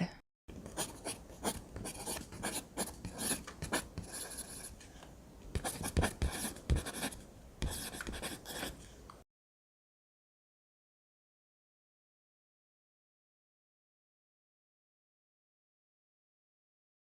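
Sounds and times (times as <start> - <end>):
pen scratching on paper: 0.5 - 4.8, 5.6 - 8.8.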